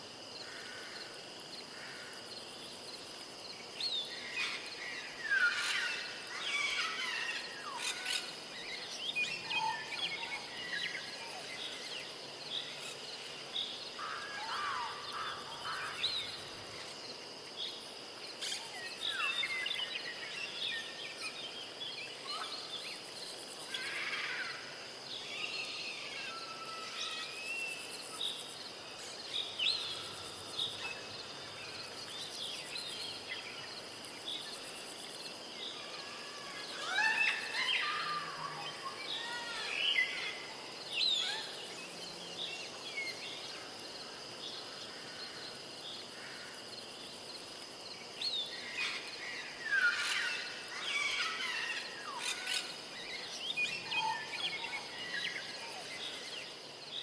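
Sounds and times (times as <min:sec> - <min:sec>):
birds chirping and calling: 0:48.5 - 0:56.2.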